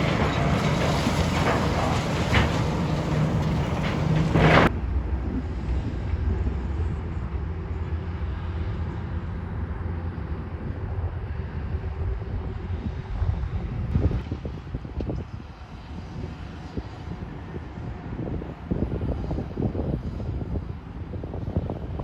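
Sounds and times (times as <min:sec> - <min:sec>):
clattering knocks: 0:00.0 - 0:04.7
demolition machinery diesel rumble: 0:00.0 - 0:04.7.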